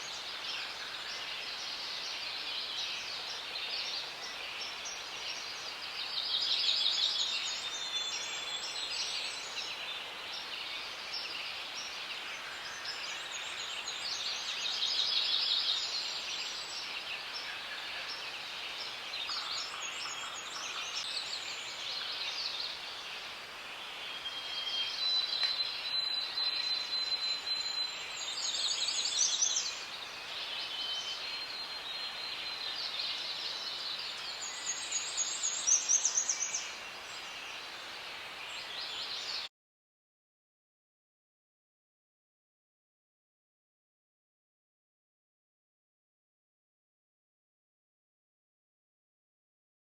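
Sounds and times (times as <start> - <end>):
steady background hiss: 0.0 - 39.5.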